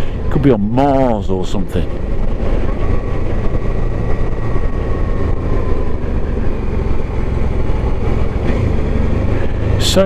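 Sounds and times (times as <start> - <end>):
faint engine whine: 0.0 - 10.0
motorcycle engine rumble: 0.0 - 10.0.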